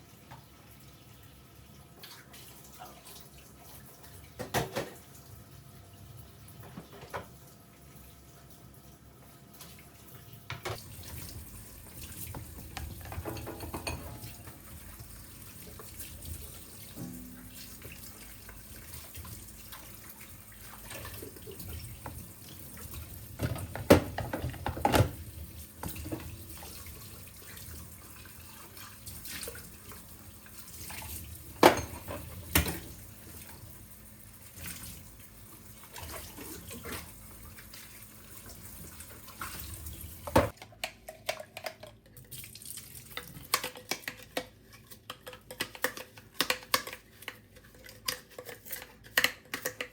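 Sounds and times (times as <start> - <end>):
tap water running into sink: 10.5 - 33.7, 35.8 - 40.6.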